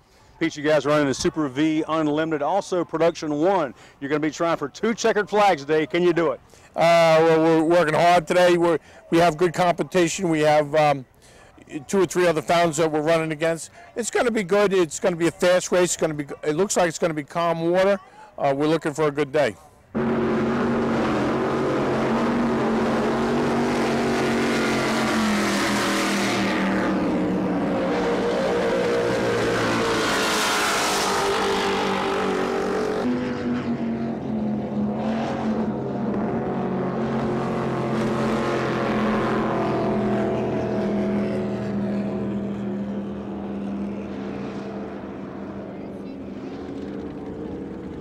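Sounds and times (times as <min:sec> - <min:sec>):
race boat engines running: 0:33.7 - 0:48.0
boat passing with rushing hiss: 0:34.3 - 0:48.0.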